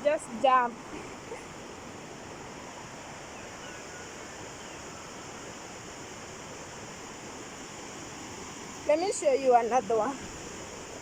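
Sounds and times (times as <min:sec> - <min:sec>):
flowing stream water: 0:00.0 - 0:11.0.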